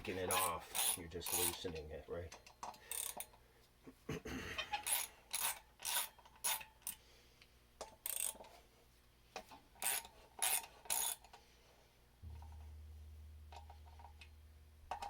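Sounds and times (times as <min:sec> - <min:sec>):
hand ratchet clicking: 0:00.2 - 0:03.4, 0:04.6 - 0:07.0, 0:07.8 - 0:08.6, 0:09.4 - 0:11.4.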